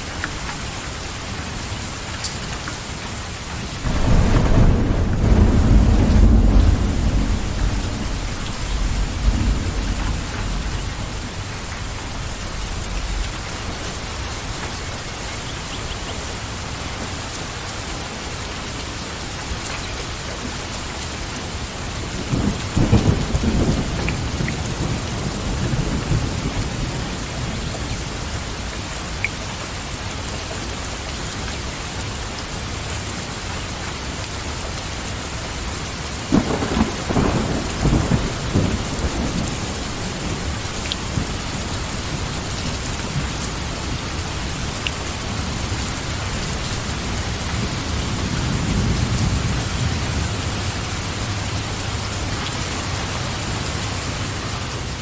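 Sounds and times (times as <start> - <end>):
steady rain falling: 0.0 - 55.0
thunder rumbling: 3.8 - 16.4, 21.9 - 28.4, 36.3 - 53.8.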